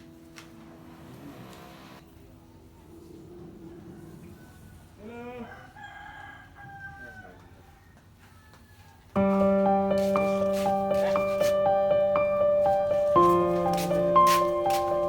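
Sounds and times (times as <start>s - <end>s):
rooster crowing: 4.0s - 9.1s
loud keyboard music: 9.2s - 15.0s.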